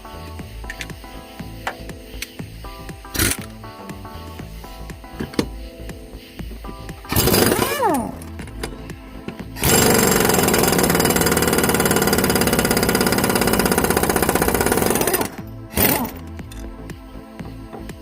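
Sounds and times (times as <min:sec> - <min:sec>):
impact wrench hammering: 0:03.1 - 0:03.6, 0:05.1 - 0:05.6, 0:06.7 - 0:16.7.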